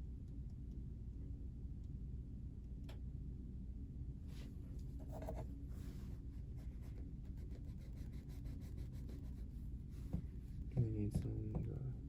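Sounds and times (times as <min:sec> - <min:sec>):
faint scratching and rubbing: 0:04.3 - 0:10.6.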